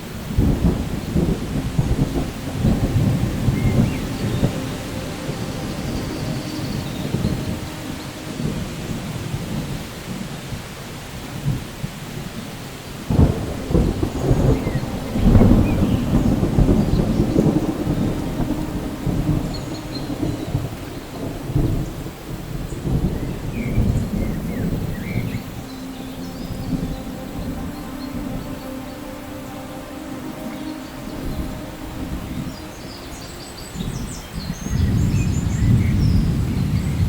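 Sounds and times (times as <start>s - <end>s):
rolling thunder: 0.0s - 37.0s
steady rain: 0.0s - 37.0s
sharp thunderclap: 0.4s - 6.4s, 13.1s - 25.6s, 34.7s - 37.0s.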